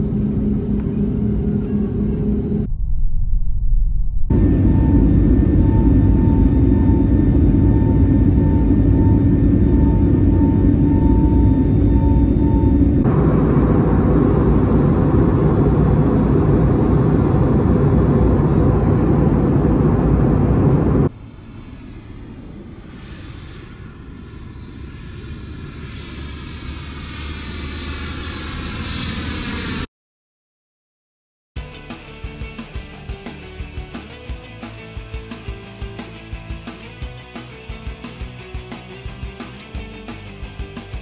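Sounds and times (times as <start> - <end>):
faint pulsing high tone: 0.0 - 29.4
loud engine rumble: 4.3 - 29.9.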